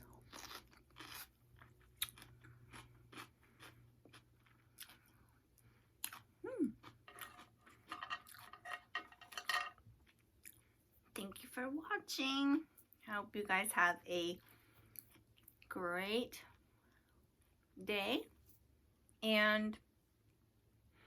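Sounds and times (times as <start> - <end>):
close chewing crunches: 0.0 - 8.6
person humming: 6.4 - 6.8.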